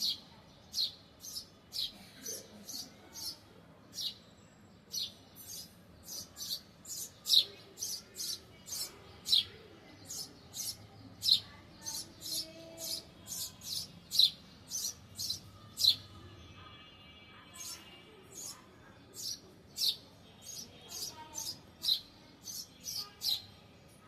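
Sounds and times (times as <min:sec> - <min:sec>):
small bird chirping: 0:00.0 - 0:02.0, 0:02.6 - 0:16.1, 0:19.2 - 0:23.5.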